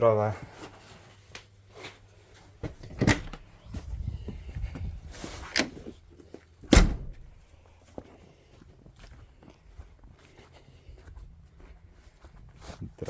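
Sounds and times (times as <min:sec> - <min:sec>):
knocks and clunks indoors: 0:02.5 - 0:06.0, 0:06.7 - 0:07.6
heavy thump: 0:06.7 - 0:07.4.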